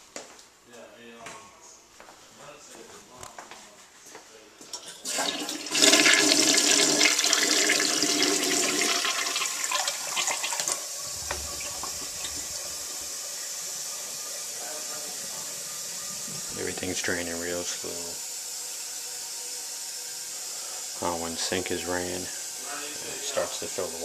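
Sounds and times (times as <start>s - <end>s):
toilet flushing: 4.7s - 24.0s
hiss of water running: 5.0s - 24.0s.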